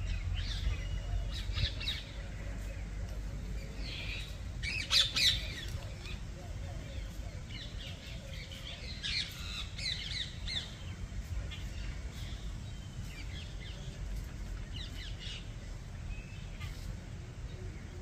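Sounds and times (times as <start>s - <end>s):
birds chirping and squawking: 0.0s - 13.7s
steady low rumble: 0.0s - 18.0s.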